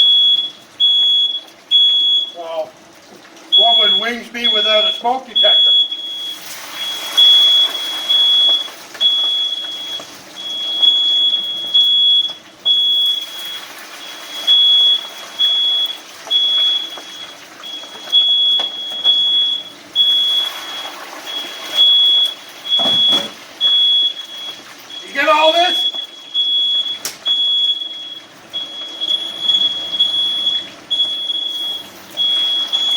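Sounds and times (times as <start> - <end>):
smoke detector beeping: 0.0 - 2.7, 3.5 - 32.9.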